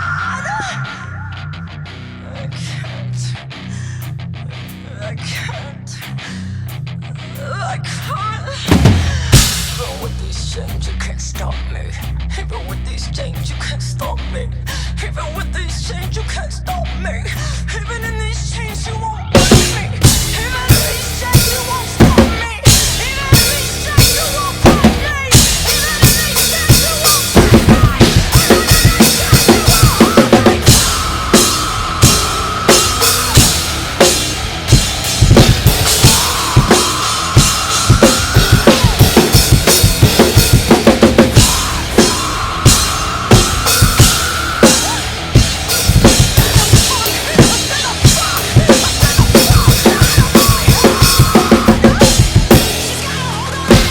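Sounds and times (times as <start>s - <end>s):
heavy rock song recording: 0.0s - 53.9s
rock drum kit playing: 0.0s - 53.9s.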